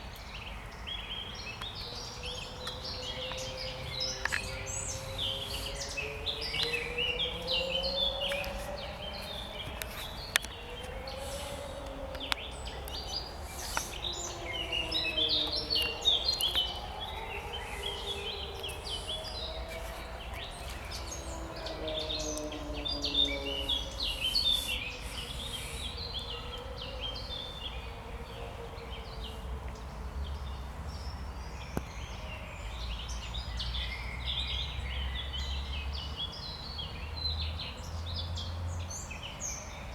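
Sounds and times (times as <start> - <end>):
songbirds chirping and trilling: 0.0 - 39.9
low wavering drone: 1.2 - 30.6.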